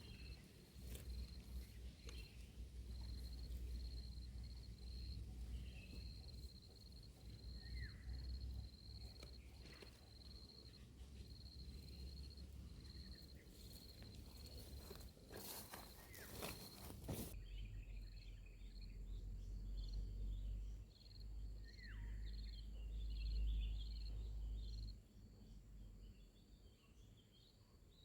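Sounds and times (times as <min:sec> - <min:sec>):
small birds chirping: 0:00.0 - 0:28.0
rustling crackles: 0:13.4 - 0:17.4.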